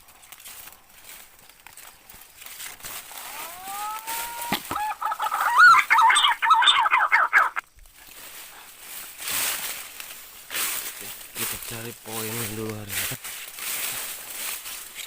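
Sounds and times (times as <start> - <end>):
bird whistling and warbling: 3.3 - 7.6.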